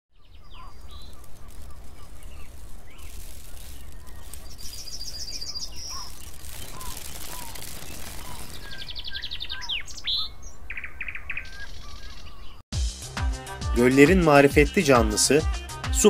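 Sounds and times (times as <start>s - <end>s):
songbirds trilling and whistling: 0.1s - 12.6s.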